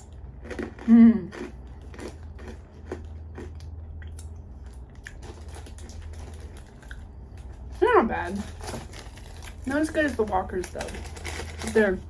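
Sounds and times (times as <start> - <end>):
person chewing crisps: 0.0 - 7.7.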